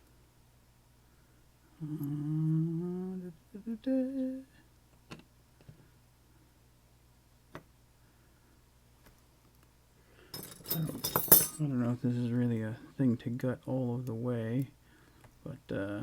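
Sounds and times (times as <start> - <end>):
man humming a tune: 1.7 - 4.6.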